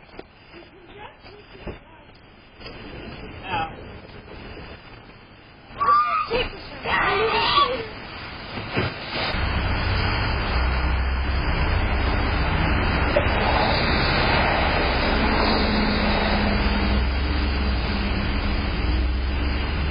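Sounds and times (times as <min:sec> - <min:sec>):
vehicle engine humming: 0:09.1 - 0:19.9.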